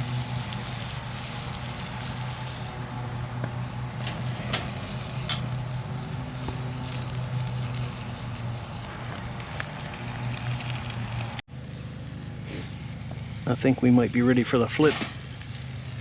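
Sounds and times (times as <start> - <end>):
bacon sizzling: 0.0 - 11.4
wood fire crackling: 0.0 - 11.4, 12.5 - 16.0.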